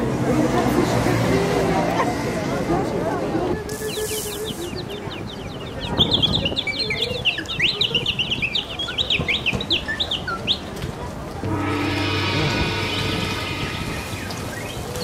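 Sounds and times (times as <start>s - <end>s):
high bird-like chirps and whistles: 11.6s - 15.0s.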